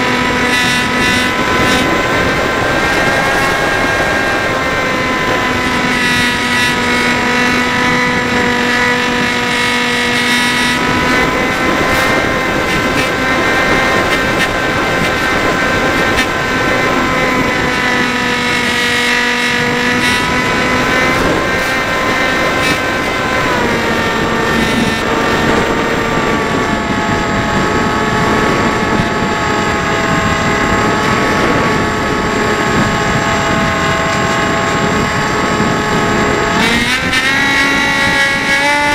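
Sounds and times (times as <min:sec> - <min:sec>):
model plane motor whining: 0:00.0 - 0:38.9
wind rumbling on microphone: 0:00.0 - 0:38.9.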